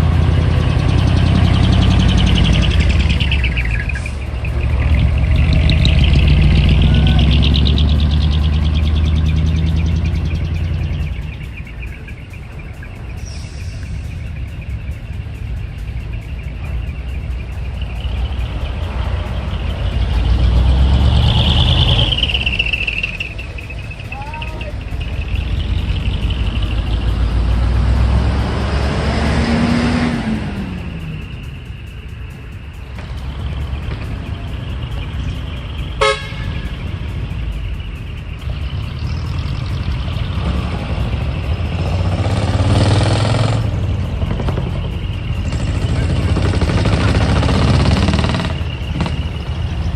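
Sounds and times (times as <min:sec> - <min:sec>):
diesel truck driving past: 0:00.0 - 0:49.9.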